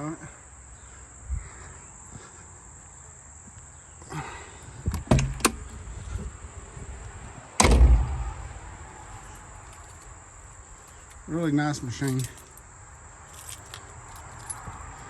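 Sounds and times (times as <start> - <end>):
crickets chirping: 0.0 - 15.0
door latch clicks: 4.9 - 5.6, 7.6 - 8.3
metal door shutting thud: 4.9 - 5.7, 7.6 - 8.6.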